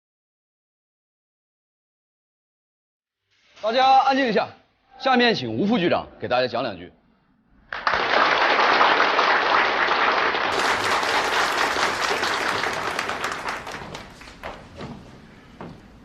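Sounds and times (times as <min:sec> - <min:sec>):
audience applauding: 0:07.7 - 0:14.8.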